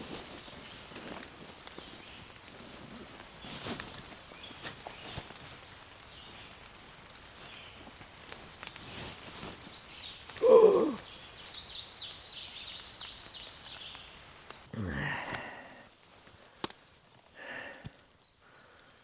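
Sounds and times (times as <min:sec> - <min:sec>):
bird chirping: 0:09.6 - 0:14.7
loud falling bird call: 0:10.1 - 0:11.6.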